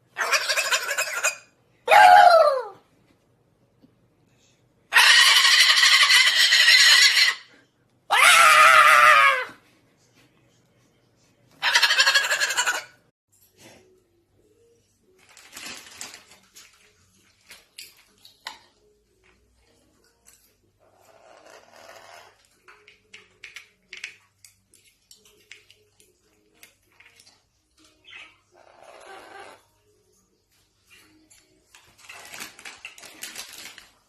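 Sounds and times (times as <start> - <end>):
parrot squawks and calls: 0.1 - 2.8, 4.9 - 7.5, 11.6 - 13.0, 28.0 - 29.6
parrot screeching: 0.2 - 2.8, 4.9 - 7.5, 8.1 - 9.6, 11.6 - 13.0, 28.0 - 29.6.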